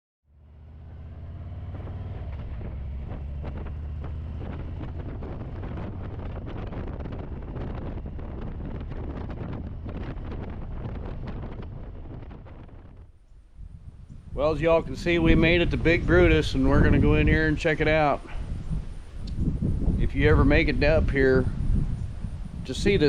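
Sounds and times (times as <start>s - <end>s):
motorcycle engine running: 0.3s - 17.4s
wind buffeting microphone: 0.4s - 23.0s.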